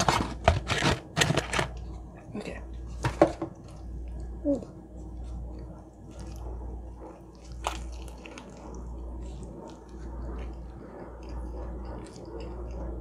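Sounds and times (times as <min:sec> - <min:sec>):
wet chewing sounds: 0:02.7 - 0:13.0
crispy breading crunch: 0:05.0 - 0:13.0.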